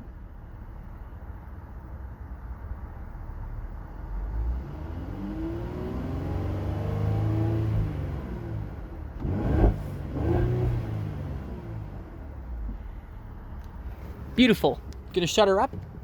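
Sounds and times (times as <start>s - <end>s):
car engine revving: 4.4s - 12.2s.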